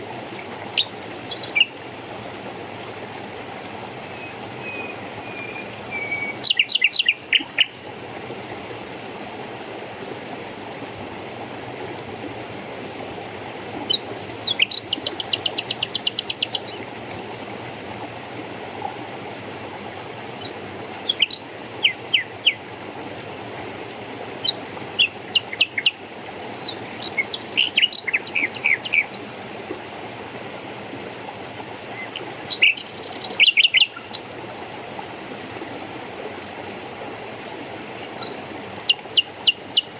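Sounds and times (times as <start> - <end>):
stream rushing: 0.0 - 39.9
songbird chirping and trilling: 4.2 - 7.8, 24.4 - 26.0, 26.6 - 29.3, 32.0 - 34.2.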